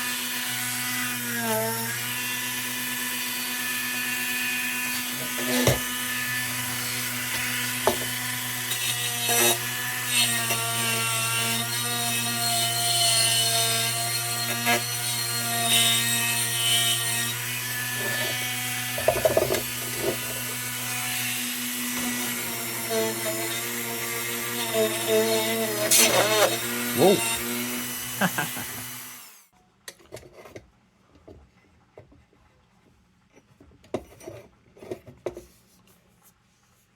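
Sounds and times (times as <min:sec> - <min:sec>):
power tool motor hum: 0:17.4 - 0:29.4.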